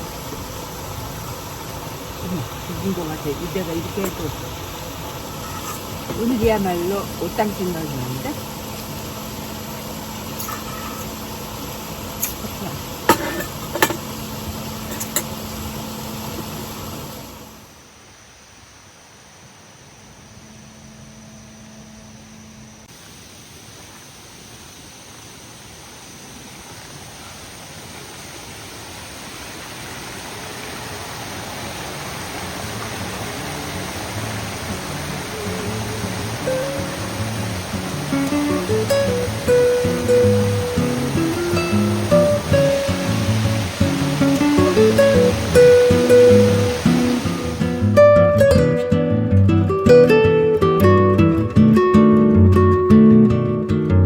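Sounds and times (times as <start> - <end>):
stream water rushing: 0.0 - 21.7, 22.5 - 52.7
low mechanical hum: 0.0 - 53.7
faint guitar music: 32.4 - 54.0.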